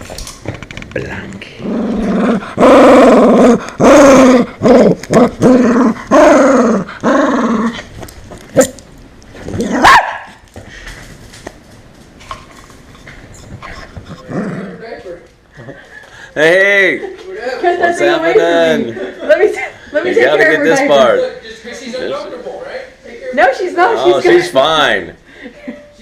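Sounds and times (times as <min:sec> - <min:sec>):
dog barking and growling: 0:01.6 - 0:07.9, 0:08.5 - 0:10.5, 0:13.7 - 0:15.0
dog yelp: 0:09.7 - 0:10.4.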